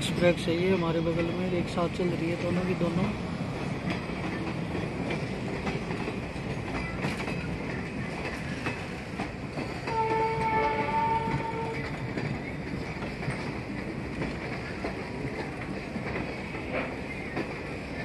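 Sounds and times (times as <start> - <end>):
train rumbling on rails: 0.0 - 18.0
train horn: 9.8 - 11.9.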